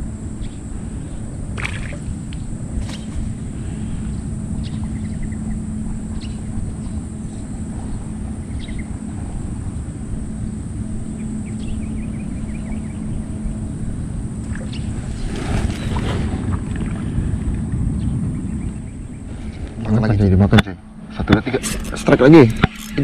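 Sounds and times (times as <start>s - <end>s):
distant motor humming: 0.0s - 23.0s
trilling bird calls: 4.0s - 16.0s.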